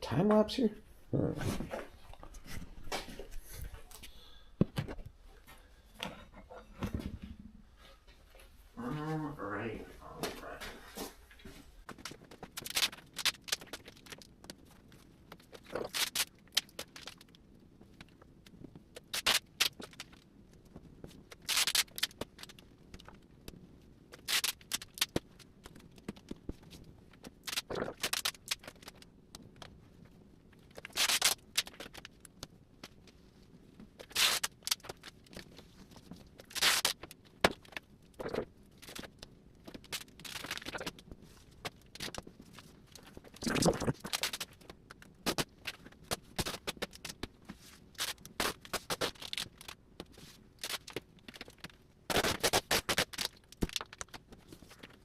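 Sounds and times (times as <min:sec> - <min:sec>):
duct tape ripping off roll: 0:12.5 - 0:14.3, 0:15.5 - 0:17.3, 0:19.0 - 0:20.2, 0:21.3 - 0:22.6, 0:24.1 - 0:25.2, 0:27.3 - 0:29.0, 0:30.7 - 0:32.1, 0:34.0 - 0:35.4, 0:36.4 - 0:39.1, 0:39.7 - 0:40.9, 0:43.4 - 0:47.2, 0:47.9 - 0:49.8, 0:50.6 - 0:54.2.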